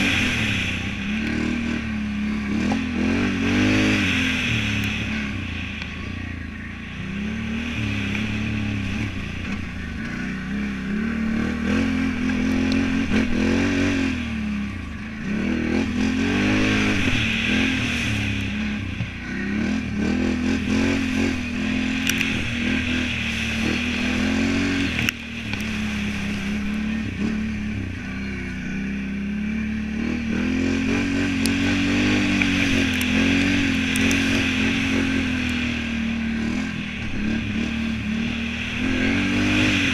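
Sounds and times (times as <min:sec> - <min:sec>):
atv engine revving: 0:00.0 - 0:39.9
sharp clicks: 0:22.0 - 0:22.3.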